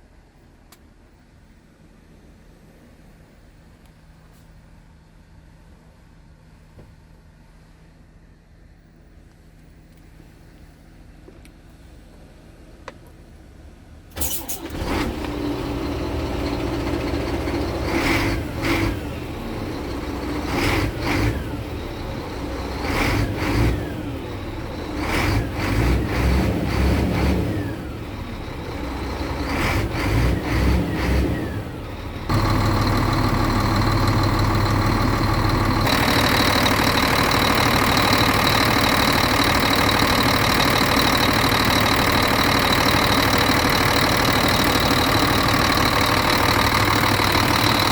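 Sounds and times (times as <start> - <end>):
diesel truck engine revving: 14.2 - 47.9.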